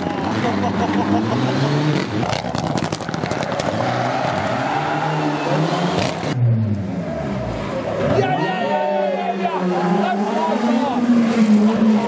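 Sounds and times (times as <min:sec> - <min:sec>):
rally car engine revving: 0:00.0 - 0:12.0
tyre and road noise: 0:00.0 - 0:12.0.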